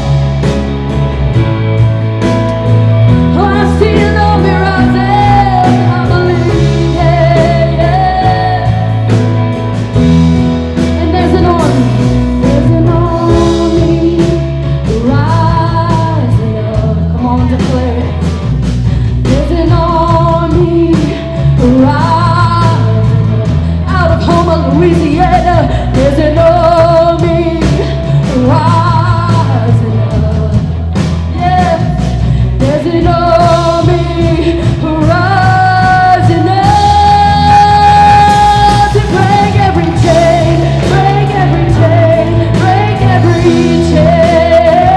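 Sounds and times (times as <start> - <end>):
rock band playing: 0.0 - 44.9
person singing: 3.1 - 9.4, 10.7 - 18.4, 31.3 - 44.9.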